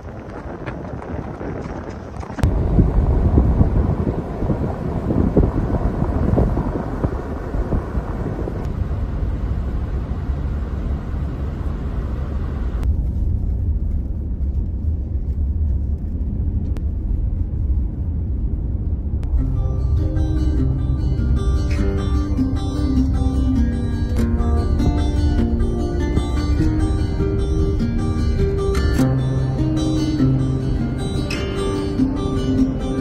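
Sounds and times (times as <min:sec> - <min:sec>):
vehicle rumble: 0:00.0 - 0:33.0
wind buffeting microphone: 0:00.0 - 0:33.0.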